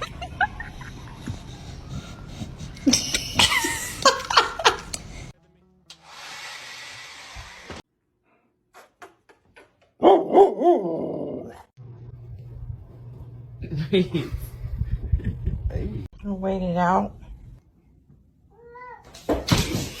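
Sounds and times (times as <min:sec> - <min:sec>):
dogs barking and yelping: 0:10.0 - 0:11.6.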